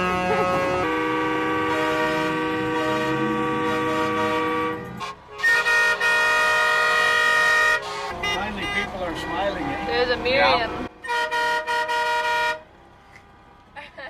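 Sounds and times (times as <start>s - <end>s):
higher-pitched horn blast: 0.0s - 12.7s
vehicle horns blasting: 0.0s - 12.7s.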